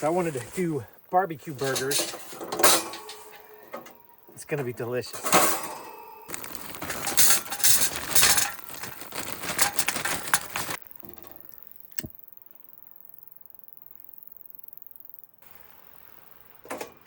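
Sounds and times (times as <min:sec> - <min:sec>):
charcoal briquettes rattling into grill: 0:01.4 - 0:11.4.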